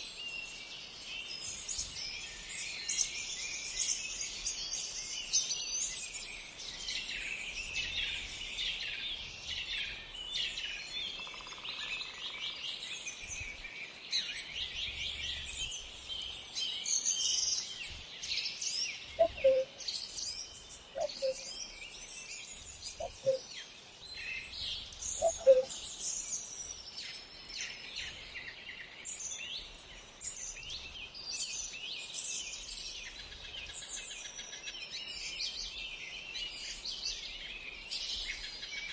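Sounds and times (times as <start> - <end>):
songbirds chirping chorus: 8.2 - 38.9
short lower bird call: 19.2 - 19.7, 25.2 - 25.7.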